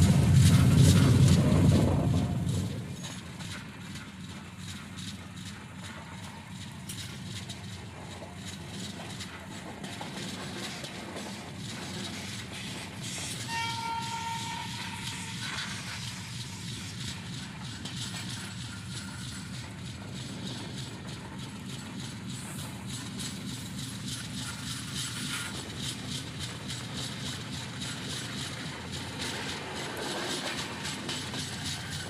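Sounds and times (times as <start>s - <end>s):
train wheels rumbling on track: 0.0s - 32.0s
train horn: 13.3s - 15.8s.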